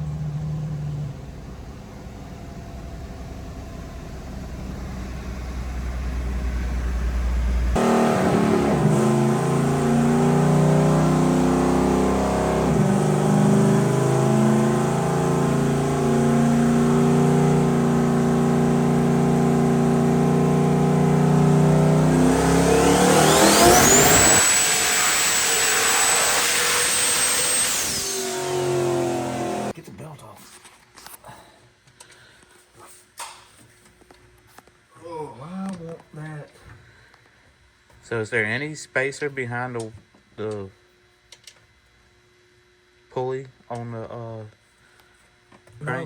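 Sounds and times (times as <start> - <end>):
vehicle engine running: 0.0 - 26.2, 28.3 - 29.8
high-pitched whine: 7.8 - 29.7.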